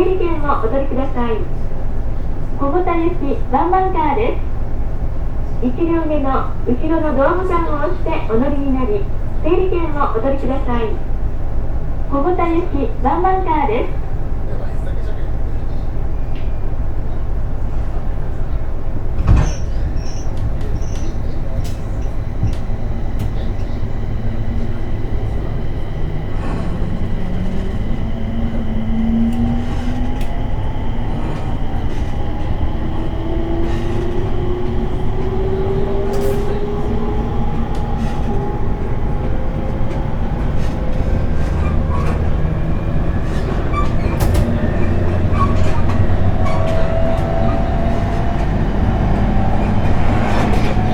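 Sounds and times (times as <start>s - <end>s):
rumble of wheels on rail: 0.0s - 50.9s
rail joint clicks: 18.9s - 50.9s.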